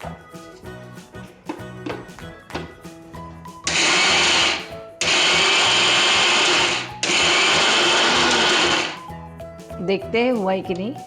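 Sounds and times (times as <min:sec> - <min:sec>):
mixer grinder grinding: 0:03.7 - 0:09.0.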